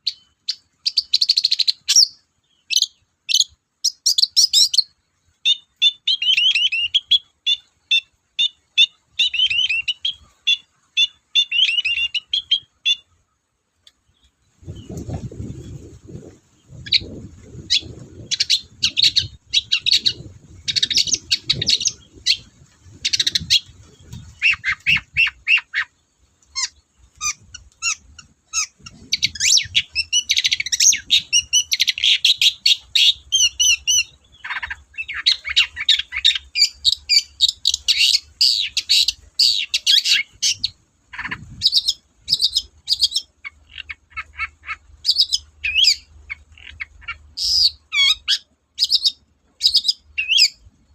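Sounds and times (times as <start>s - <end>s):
shrike singing chattering song: 14.0s - 50.6s.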